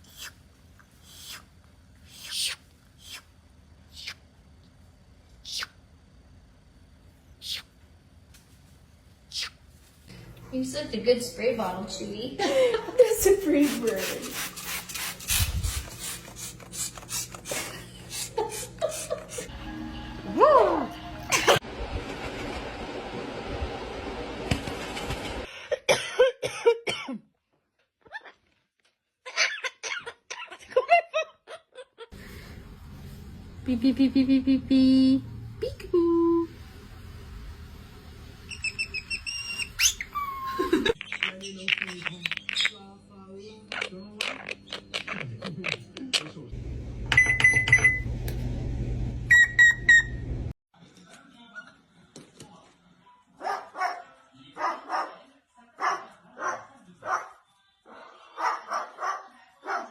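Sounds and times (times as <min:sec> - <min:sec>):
steady low hum: 0:00.3 - 0:24.2, 0:46.4 - 0:50.5.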